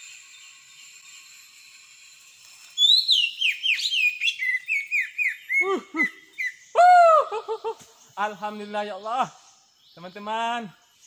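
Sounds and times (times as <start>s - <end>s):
bird chirping: 2.7s - 11.0s.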